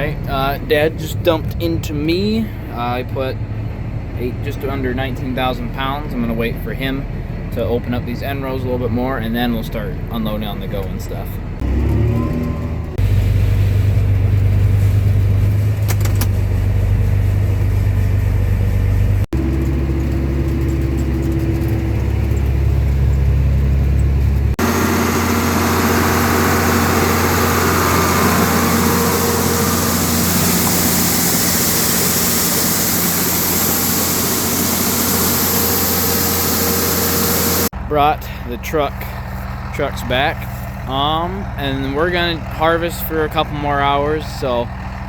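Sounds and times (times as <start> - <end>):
deep steady engine drone: 0.0 - 45.0
noisy machine with rushing noise: 11.7 - 37.7.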